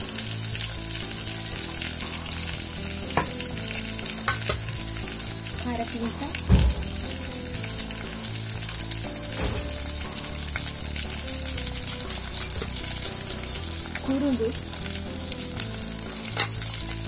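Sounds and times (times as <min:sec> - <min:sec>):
food sizzling in hot oil: 0:00.0 - 0:17.0
dull thump: 0:06.5 - 0:07.0.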